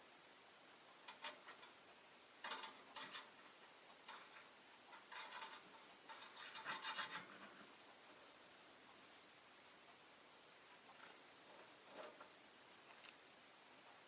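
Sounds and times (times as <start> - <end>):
lovebirds clicking and scratching: 1.0 - 7.8.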